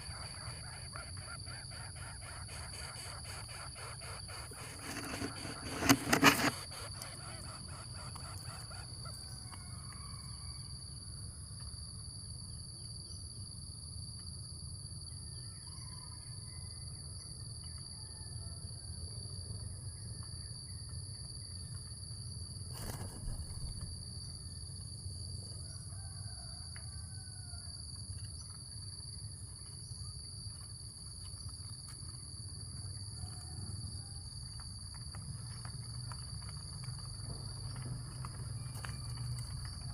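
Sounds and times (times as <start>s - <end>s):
faint bird calls: 0.0s - 9.3s
insects buzzing: 0.0s - 9.4s, 22.7s - 24.4s.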